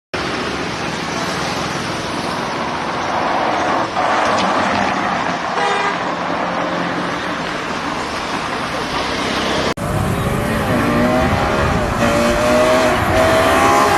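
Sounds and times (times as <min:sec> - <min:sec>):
road traffic noise: 0:00.1 - 0:13.9
car horn honking: 0:05.6 - 0:06.2.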